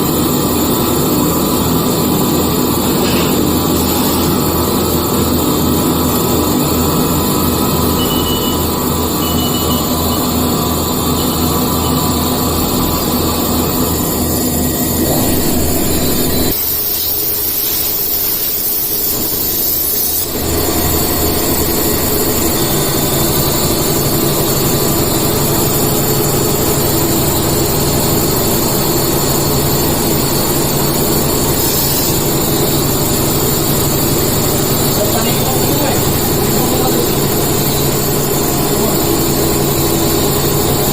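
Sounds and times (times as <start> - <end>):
milling machine cutting: 2.6 - 5.2, 13.5 - 17.4.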